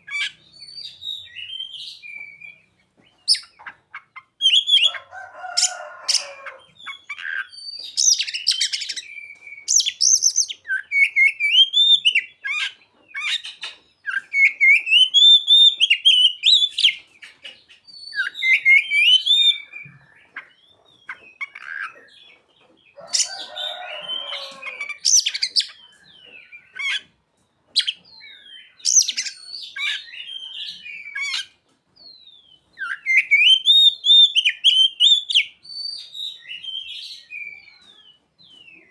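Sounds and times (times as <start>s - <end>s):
bird singing whistled phrases: 7.6s - 12.3s, 18.0s - 20.0s, 32.3s - 37.8s
harsh rasping bird chatters: 9.7s - 22.4s.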